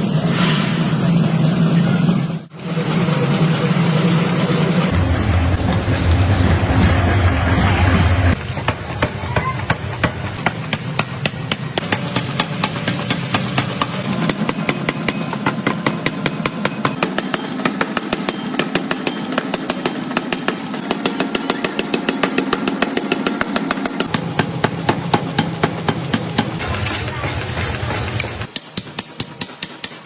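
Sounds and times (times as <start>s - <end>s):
motor hum: 24.1s - 28.5s.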